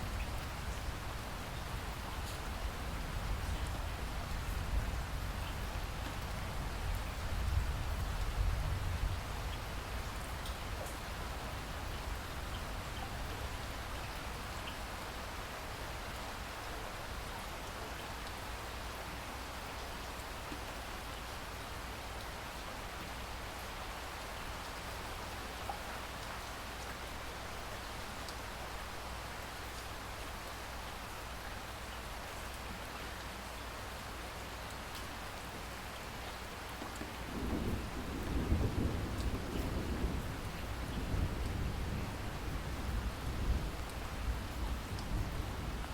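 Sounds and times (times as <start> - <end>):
rain falling: 0.0 - 45.9
low roll of thunder: 37.1 - 45.9.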